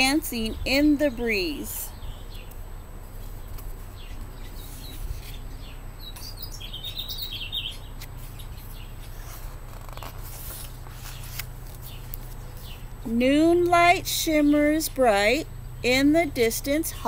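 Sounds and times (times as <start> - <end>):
small bird chirping: 1.8 - 12.9
book pages turning: 3.2 - 6.3, 7.7 - 12.8.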